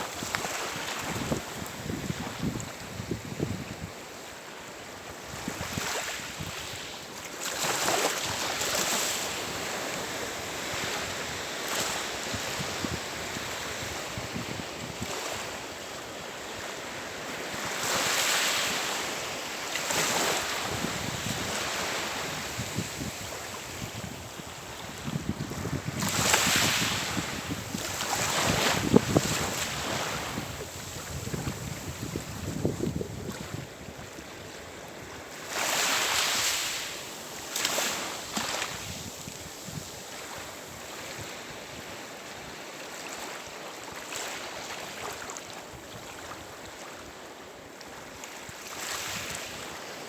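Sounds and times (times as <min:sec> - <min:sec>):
waves washing onto shore: 0:00.0 - 0:50.0
wind buffeting microphone: 0:20.6 - 0:34.1.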